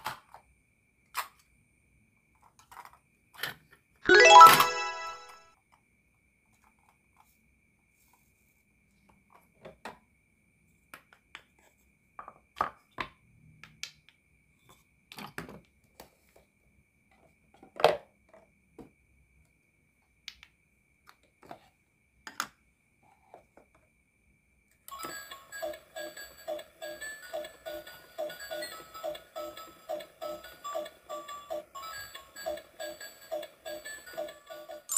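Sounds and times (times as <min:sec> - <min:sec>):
plastic toys clicking and knocking: 0:02.3 - 0:04.8
faint steady high tone: 0:04.1 - 0:05.4, 0:24.9 - 0:34.9
music: 0:04.1 - 0:05.5, 0:25.0 - 0:34.9.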